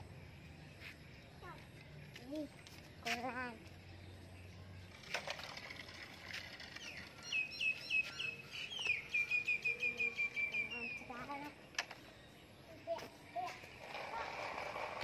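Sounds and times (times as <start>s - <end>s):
bird chirping: 6.6s - 13.9s.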